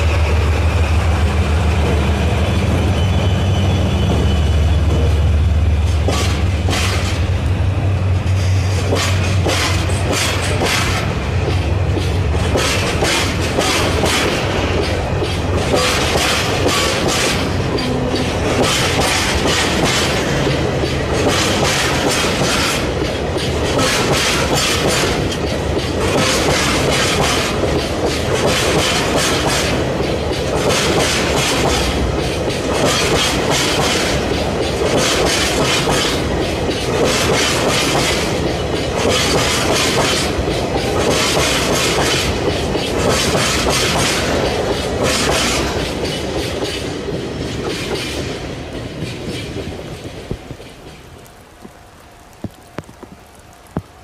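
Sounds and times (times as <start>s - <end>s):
train rumble: 0.0s - 54.0s
wheels clattering over rail joints: 8.5s - 51.3s.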